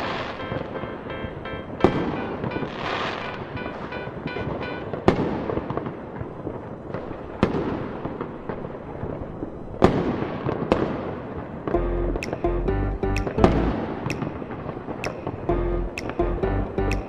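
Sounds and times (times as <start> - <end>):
loud firework bangs: 1.8 - 8.6, 9.8 - 11.4
fireworks crackling: 1.8 - 11.6.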